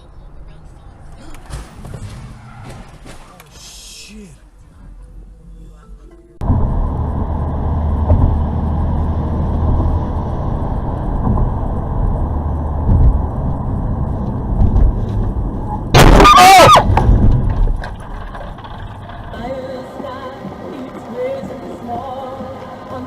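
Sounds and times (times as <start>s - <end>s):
vehicle road and engine rumble: 0.0s - 23.0s
loud crash with squeal: 15.6s - 19.3s.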